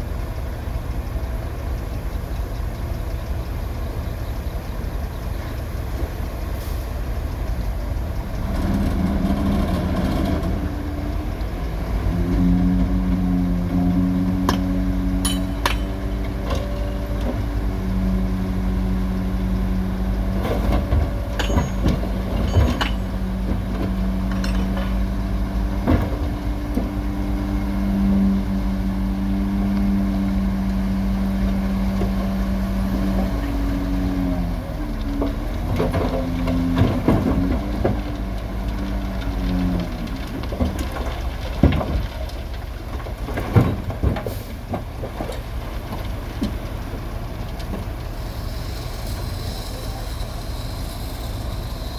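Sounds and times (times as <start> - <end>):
heavy machinery diesel engine running: 0.0 - 51.9
metal knocks and clanks: 14.4 - 17.5, 20.4 - 25.1.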